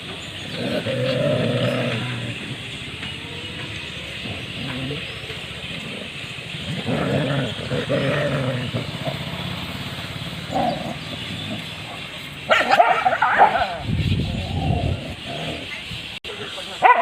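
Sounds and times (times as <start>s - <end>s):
dogs growling in a fight: 0.4s - 2.6s, 4.1s - 9.4s, 10.4s - 15.8s
dog crying out loudly: 12.5s - 13.8s.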